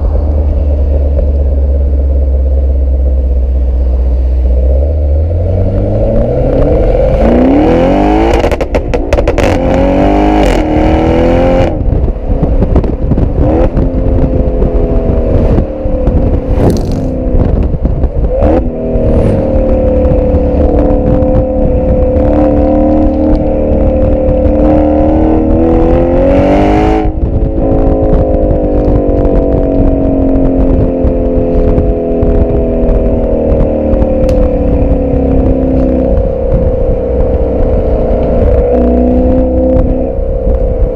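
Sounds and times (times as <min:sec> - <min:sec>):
car engine accelerating: 0:00.0 - 0:40.9
exhaust crackles: 0:00.0 - 0:40.9
wind rumble on microphone: 0:00.0 - 0:40.9.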